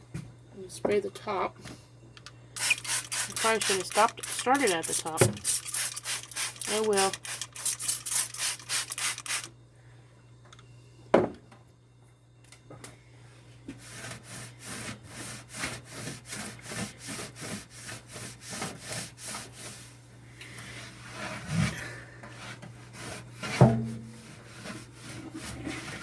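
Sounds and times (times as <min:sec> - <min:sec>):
cloth rag scrubbing microwave: 0:02.6 - 0:09.5, 0:20.8 - 0:26.0.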